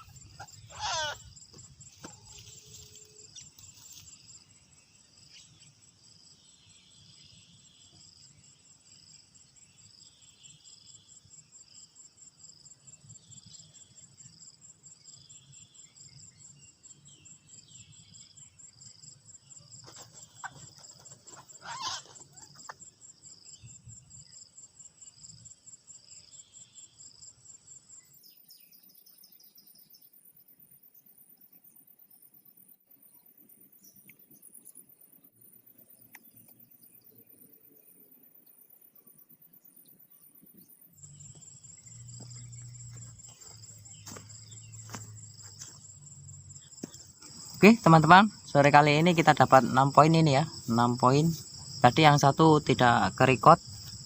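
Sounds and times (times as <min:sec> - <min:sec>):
loud sweeping calls: 0:00.0 - 0:01.3, 0:21.3 - 0:22.5
insects chirping in a fast trill: 0:00.0 - 0:54.0.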